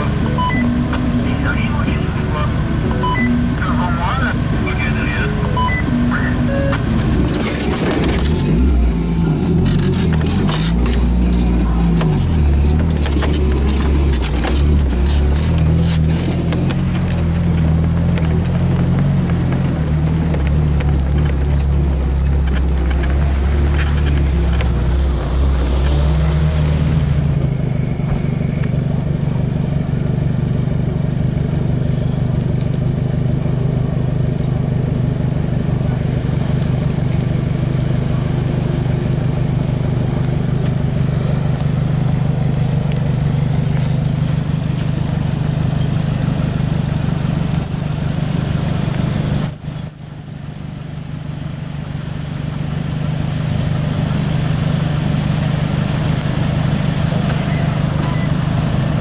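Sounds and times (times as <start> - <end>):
engine running while driving: 0.0 - 59.0
knocks and rattles: 9.7 - 24.9.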